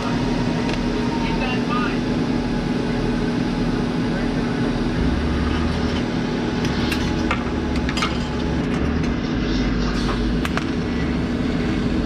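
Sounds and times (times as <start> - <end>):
low hum: 4.7 - 12.0.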